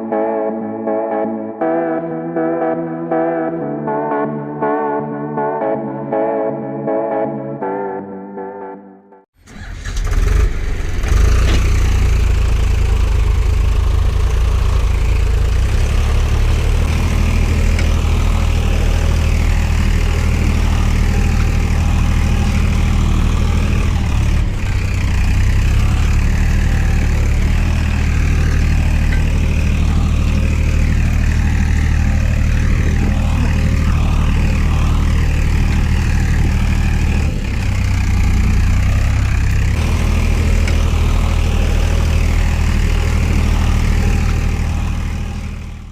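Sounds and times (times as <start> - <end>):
tractor diesel engine rumbling: 9.4 - 45.9.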